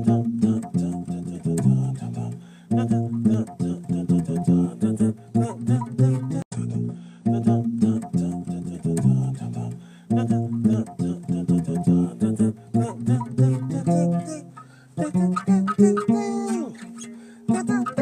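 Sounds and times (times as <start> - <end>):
bass guitar plucked notes: 0.0 - 18.0.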